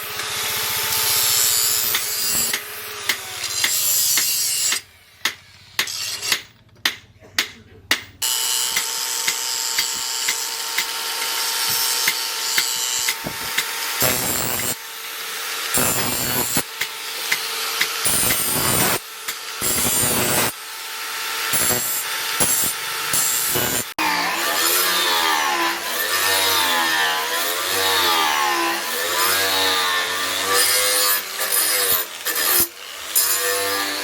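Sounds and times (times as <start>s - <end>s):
power tool motor running: 8.2s - 24.0s.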